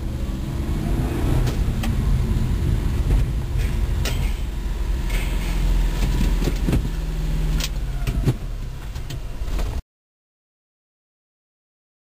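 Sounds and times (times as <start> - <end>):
small truck engine rumbling: 0.0 - 9.8.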